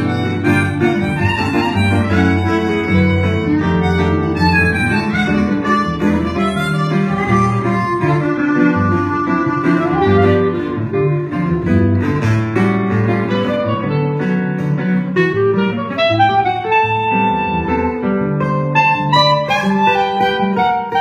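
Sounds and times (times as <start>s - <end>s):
bowed strings melody: 0.0s - 15.2s
low bass line: 0.0s - 15.9s
guitar: 0.0s - 21.0s.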